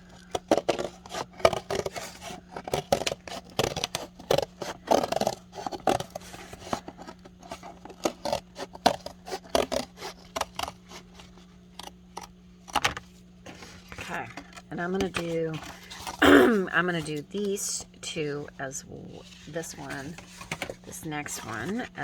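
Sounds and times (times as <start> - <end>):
scissors cutting paper: 0.0 - 12.3.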